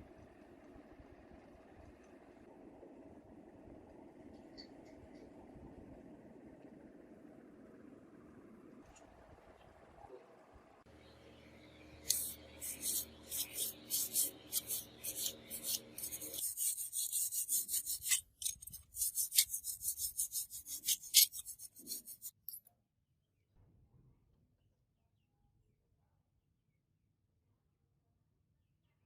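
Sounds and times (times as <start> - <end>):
hand filing scraping strokes: 12.0 - 22.4.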